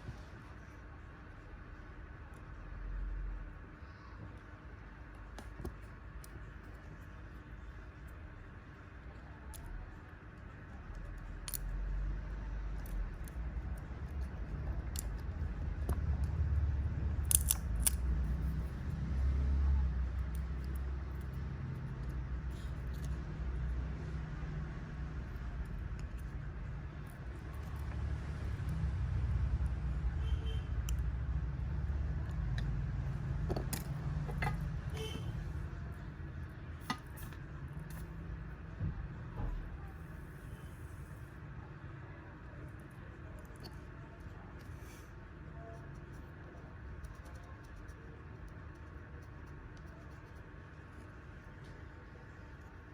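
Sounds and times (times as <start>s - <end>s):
low background rumble: 0.0s - 52.9s
low steady hum: 0.0s - 52.9s
small metal clicks and taps: 17.2s - 18.0s.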